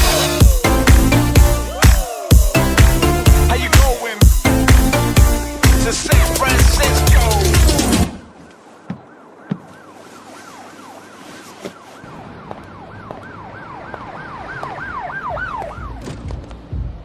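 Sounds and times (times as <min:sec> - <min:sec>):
emergency vehicle siren wailing: 0:00.0 - 0:04.1, 0:08.4 - 0:16.0.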